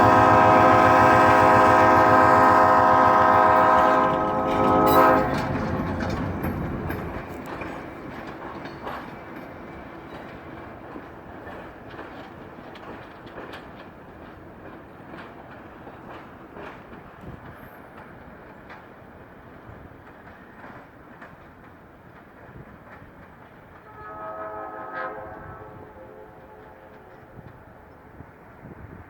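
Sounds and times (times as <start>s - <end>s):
locomotive air horn: 0.0s - 5.6s, 23.8s - 27.5s
train wheels clicking over rail joints: 0.0s - 29.0s.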